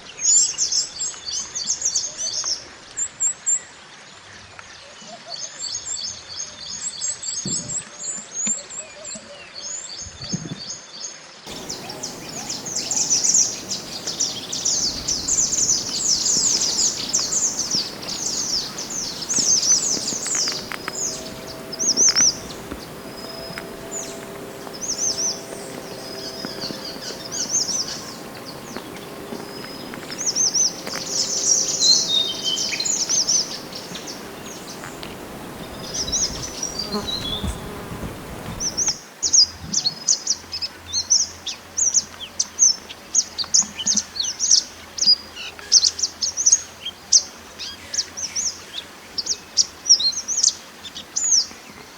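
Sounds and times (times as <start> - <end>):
songbird chirping and trilling: 11.5 - 39.0.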